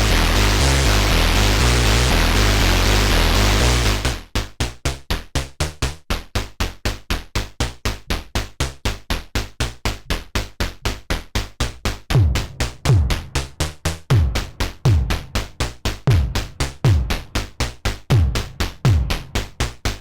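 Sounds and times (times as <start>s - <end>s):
synth kick drum: 0.0s - 4.3s, 11.8s - 20.0s.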